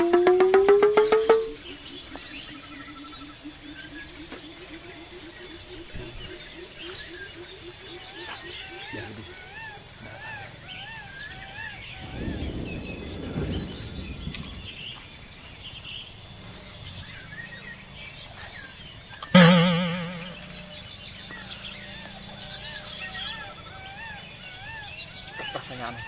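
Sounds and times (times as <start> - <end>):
loud wavering tone: 0.0 - 1.6, 19.4 - 23.5
birds calling: 0.0 - 26.0.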